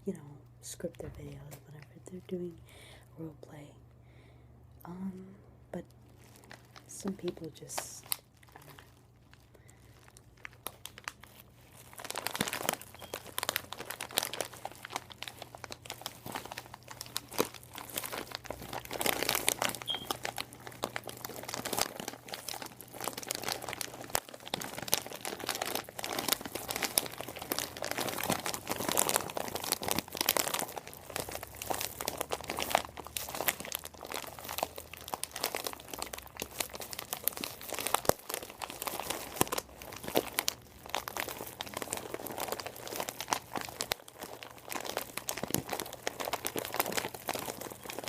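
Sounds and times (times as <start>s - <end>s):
material crinkling by hand: 5.9s - 48.0s.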